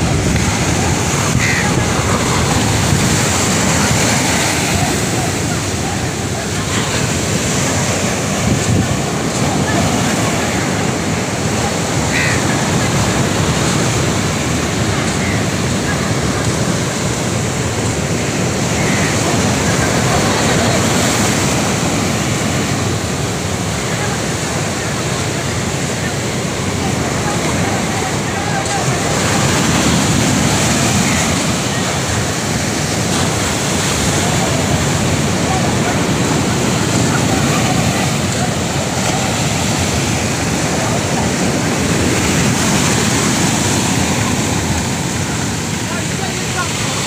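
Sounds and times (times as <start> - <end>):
wind buffeting microphone: 0.0 - 12.0
rough sea water rushing: 0.0 - 47.0
waves washing against boat: 0.0 - 47.0
wind: 0.0 - 47.0.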